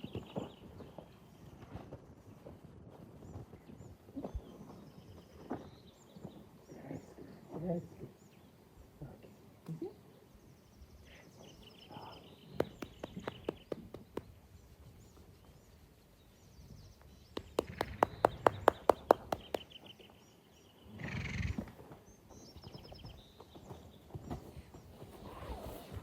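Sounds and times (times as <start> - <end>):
hooves knocking on ground: 12.4 - 15.3, 17.0 - 20.2.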